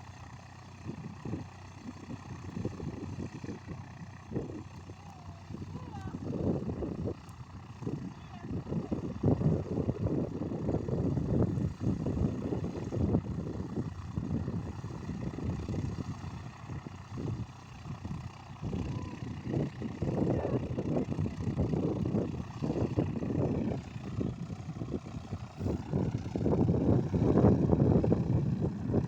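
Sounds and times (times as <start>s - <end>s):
airplane engine droning: 0.0s - 29.0s
wind on microphone: 0.8s - 29.0s.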